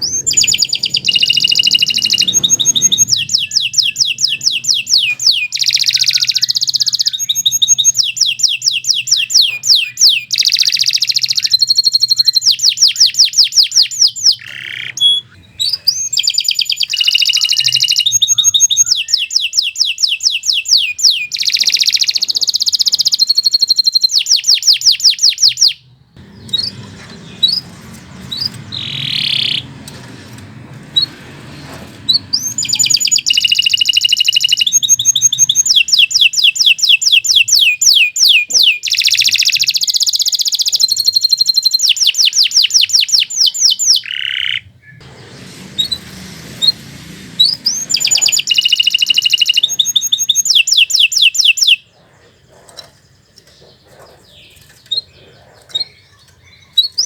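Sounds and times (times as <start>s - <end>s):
short bird chirps: 0.0s - 25.8s, 47.4s - 51.9s
canary singing trills: 0.0s - 57.0s.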